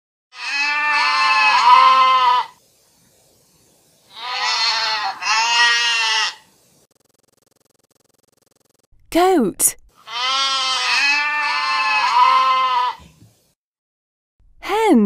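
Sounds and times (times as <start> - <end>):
goat bleating: 0.3 - 2.6, 4.1 - 6.5, 10.0 - 13.2.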